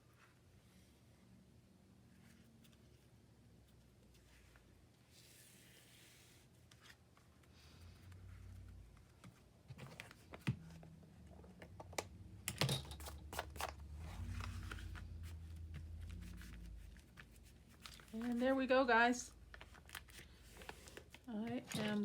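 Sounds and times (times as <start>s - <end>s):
paper rustling: 13.0s - 18.7s, 19.4s - 22.0s.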